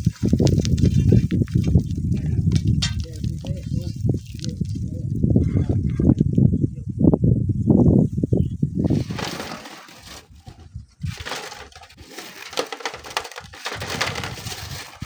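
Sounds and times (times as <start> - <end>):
sand and gravel crumbling: 0.0 - 5.3, 8.8 - 15.0.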